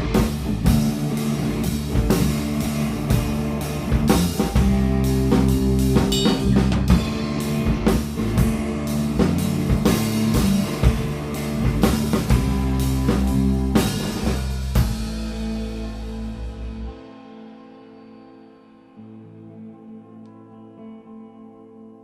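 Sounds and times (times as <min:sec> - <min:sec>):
drum kit beat: 0:00.0 - 0:17.0
bass notes: 0:00.0 - 0:17.4
electric guitar: 0:00.0 - 0:22.0.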